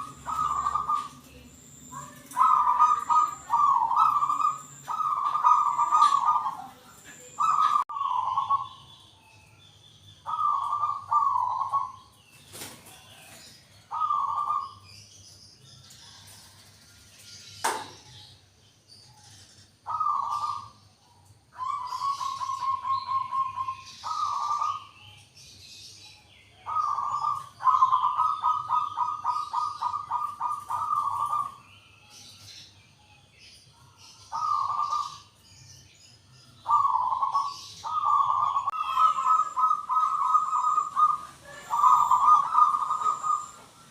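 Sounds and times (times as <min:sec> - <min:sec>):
dove cooing: 0:00.0 - 0:08.8, 0:10.2 - 0:12.0, 0:12.9 - 0:14.8, 0:19.8 - 0:20.8, 0:21.5 - 0:25.0, 0:26.6 - 0:31.6, 0:34.3 - 0:35.3, 0:36.6 - 0:43.9.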